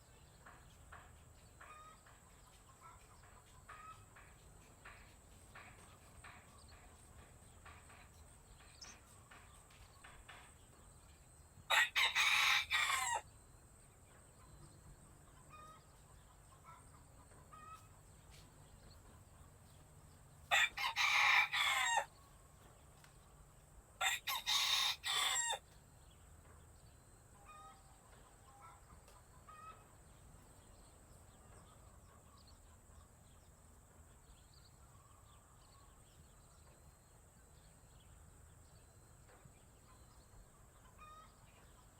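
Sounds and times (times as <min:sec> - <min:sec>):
chickens clucking and chirping: 0:00.0 - 0:23.1, 0:24.0 - 0:41.9
rooster crowing: 0:11.7 - 0:13.3, 0:20.5 - 0:22.1, 0:24.0 - 0:25.6.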